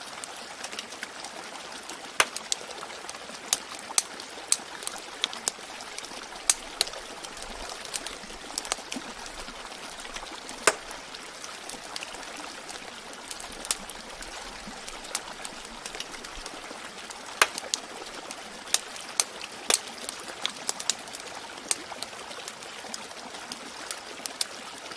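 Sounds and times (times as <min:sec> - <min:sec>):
water trickling: 0:00.0 - 0:24.9
wood fire crackling: 0:02.1 - 0:21.8.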